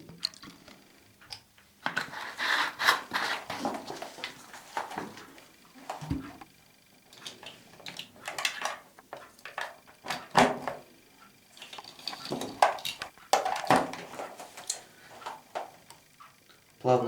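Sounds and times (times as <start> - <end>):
utensils clinking and knocking: 11.6 - 15.7.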